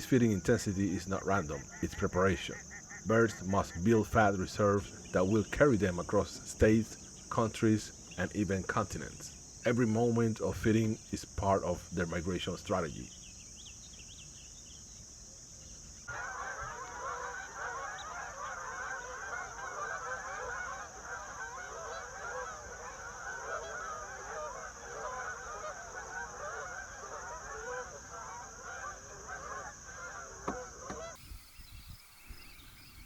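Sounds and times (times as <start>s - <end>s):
geese honking: 0.0s - 7.6s, 16.1s - 33.0s
insect chorus: 0.0s - 33.0s.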